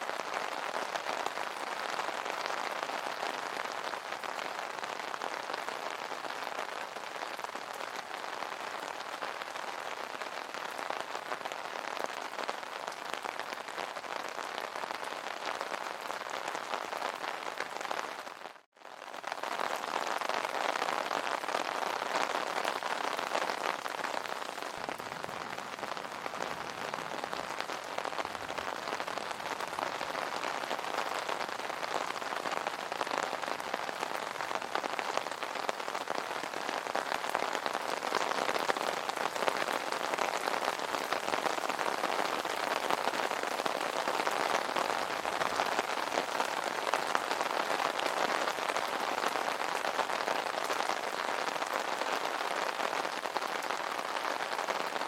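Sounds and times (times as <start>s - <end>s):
rain drumming on an umbrella: 0.0s - 55.0s.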